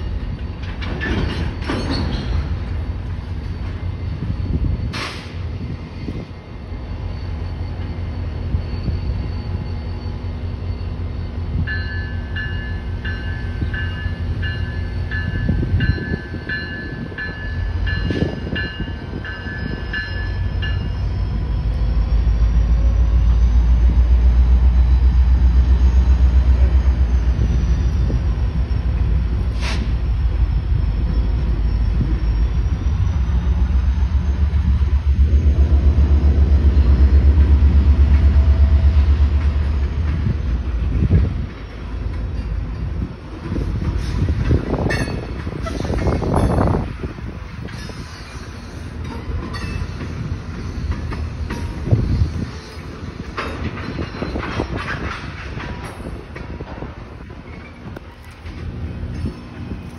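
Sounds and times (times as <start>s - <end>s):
railcars rumbling by: 0.0s - 59.9s
crossing bell ringing: 6.9s - 22.8s, 24.7s - 37.9s, 44.7s - 47.1s, 47.8s - 52.2s, 53.4s - 54.8s.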